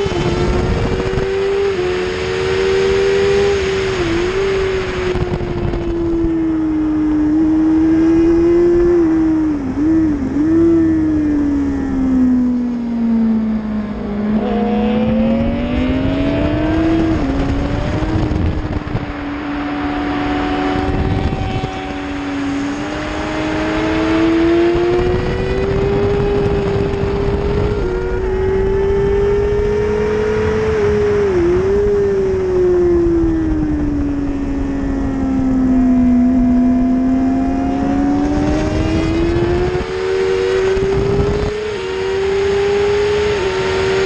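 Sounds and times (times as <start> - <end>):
sport bike engine revving: 0.0 - 5.8, 13.1 - 32.1, 35.9 - 44.0
wind rushing: 0.0 - 6.7, 7.4 - 44.0.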